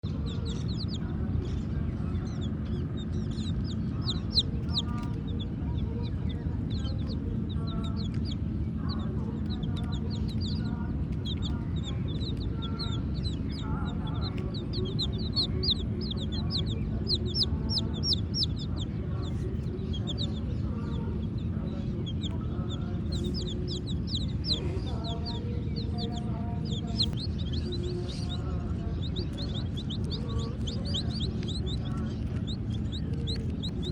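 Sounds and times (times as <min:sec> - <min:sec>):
baby chicks peeping: 0:00.0 - 0:33.9
low rumble: 0:00.0 - 0:33.9.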